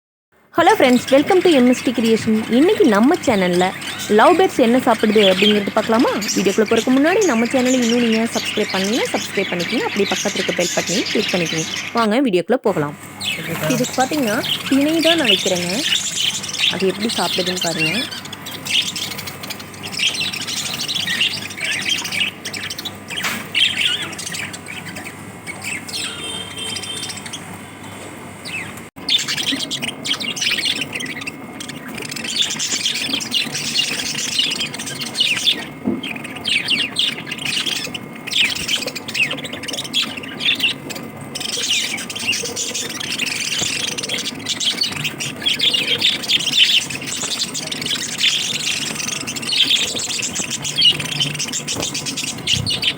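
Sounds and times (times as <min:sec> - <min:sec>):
lovebirds chirping and chattering: 0:00.6 - 0:52.9.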